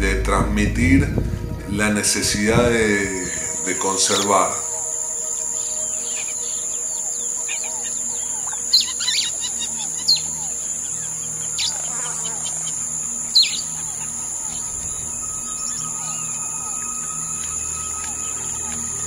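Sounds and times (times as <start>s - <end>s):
birds chirping: 0.0s - 19.0s
high-pitched insect drone: 0.0s - 19.0s.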